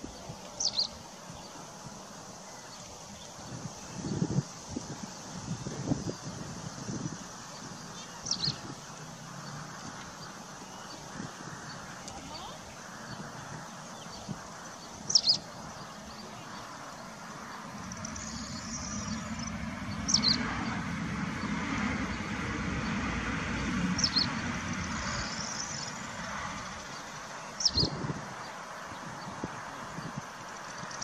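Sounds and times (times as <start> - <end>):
bird chirping: 0.0 - 1.6, 7.0 - 8.8, 9.4 - 23.0, 23.9 - 31.0
low traffic rumble: 0.0 - 31.0
faint twittering: 5.5 - 31.0.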